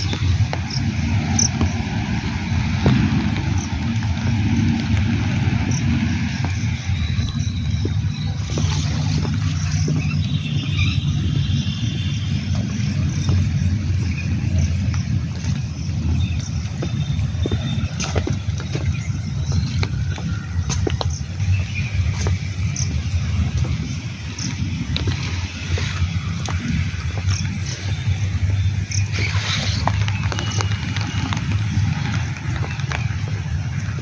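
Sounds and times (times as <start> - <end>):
heavy low rumble: 0.0 - 34.0
rain falling steadily: 0.0 - 34.0.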